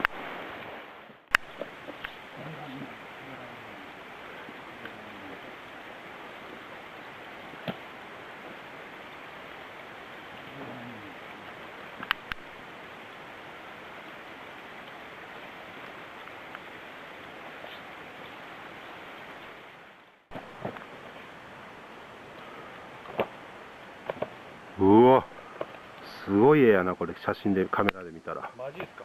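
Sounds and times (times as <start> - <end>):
mountain stream rushing: 0.0 - 29.0
sharp clicks: 1.3 - 2.2, 12.0 - 12.5.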